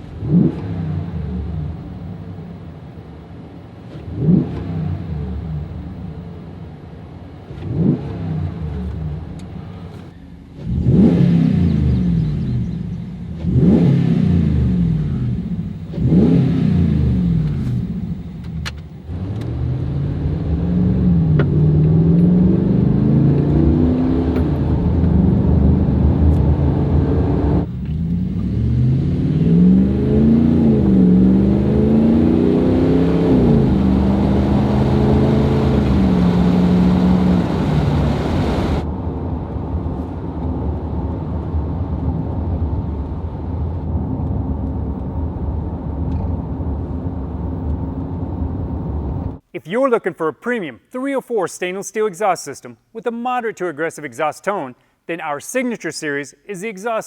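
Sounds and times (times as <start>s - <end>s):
pickup truck engine revving: 13.4s - 18.2s, 19.1s - 38.9s
truck engine pulling away: 19.1s - 49.4s.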